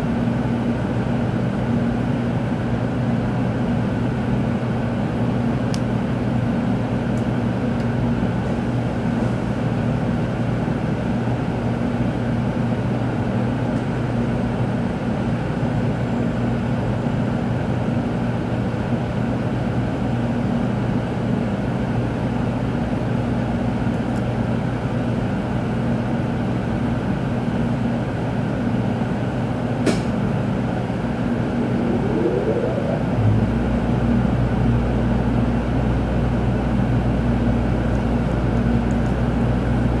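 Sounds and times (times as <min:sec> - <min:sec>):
train interior hum and rumble: 0:00.0 - 0:40.0
short rising whine: 0:30.3 - 0:35.4.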